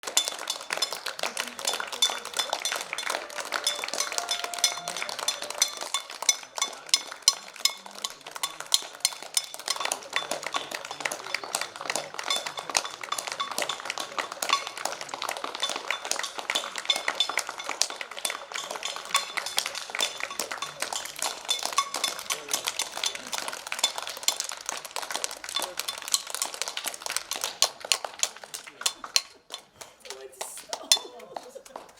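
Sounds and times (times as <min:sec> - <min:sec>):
pots and pans clanging: 0:00.0 - 0:24.6
people clapping: 0:00.0 - 0:31.9
voices: 0:00.5 - 0:23.5, 0:28.4 - 0:31.9.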